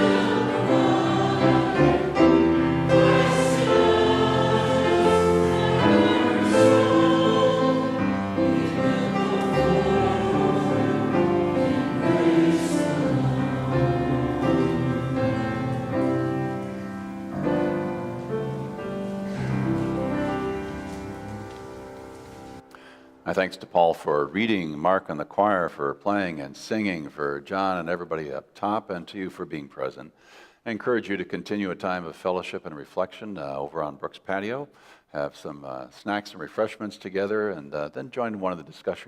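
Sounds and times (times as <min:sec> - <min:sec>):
choir singing a hymn: 0:00.0 - 0:21.4.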